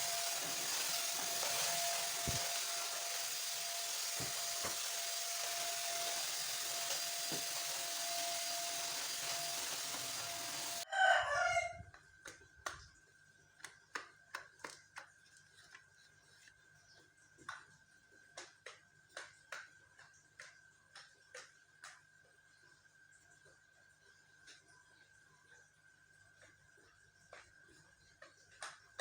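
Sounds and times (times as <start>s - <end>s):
motor running: 0.0s - 10.8s
rooster crowing: 10.8s - 11.9s.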